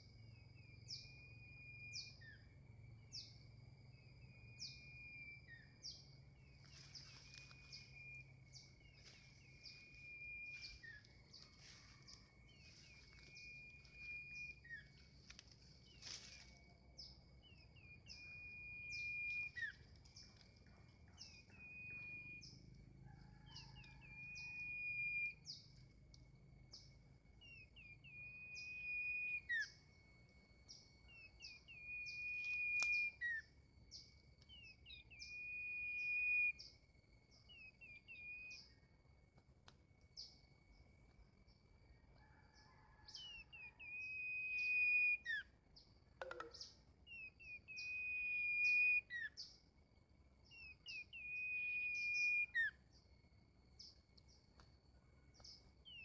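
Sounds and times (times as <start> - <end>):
faint steady high tone: 0.0 - 39.0, 46.2 - 49.8.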